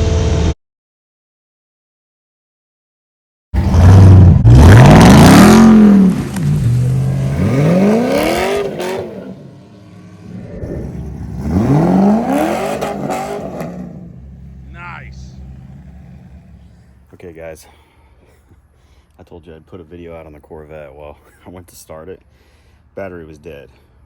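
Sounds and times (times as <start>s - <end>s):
car engine idling and revving: 3.6s - 17.1s.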